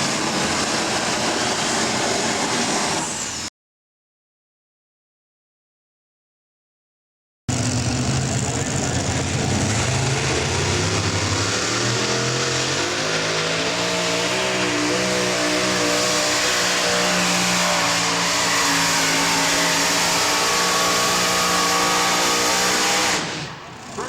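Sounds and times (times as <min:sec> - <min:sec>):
tractor engine at full throttle: 0:00.0 - 0:03.5, 0:07.5 - 0:24.0.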